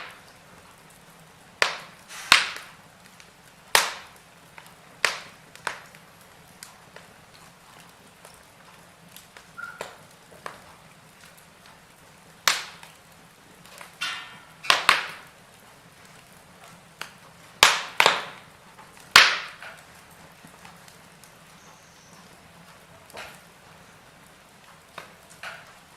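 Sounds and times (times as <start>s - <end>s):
faint steady hiss: 0.0s - 25.9s
wood fire crackling: 0.0s - 25.9s.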